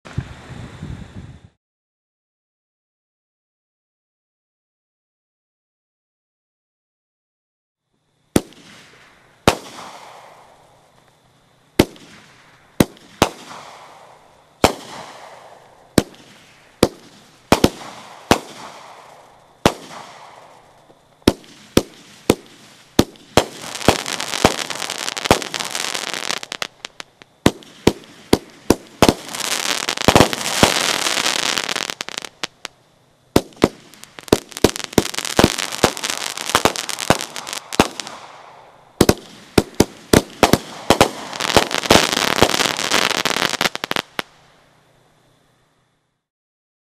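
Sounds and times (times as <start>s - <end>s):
dense firework crackling: 8.3s - 44.8s
firework reports: 11.8s - 32.7s, 33.3s - 44.3s.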